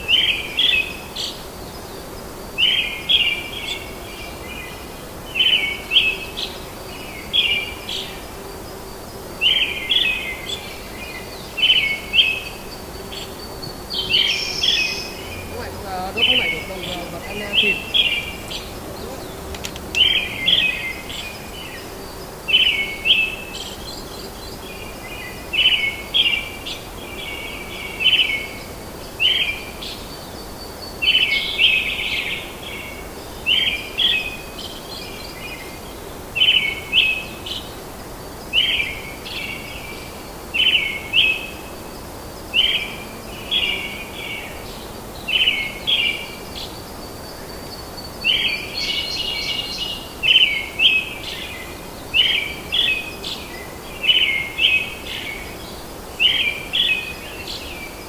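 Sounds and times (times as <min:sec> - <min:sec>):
forest ambience hiss: 0:00.0 - 0:58.0
bird singing chirpy phrase: 0:14.0 - 0:21.4.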